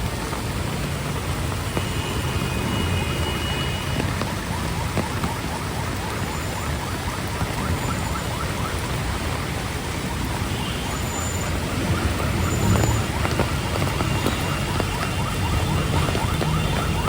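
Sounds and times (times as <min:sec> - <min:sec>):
heavy rain: 0:00.0 - 0:17.0
road traffic rumble: 0:00.0 - 0:17.0.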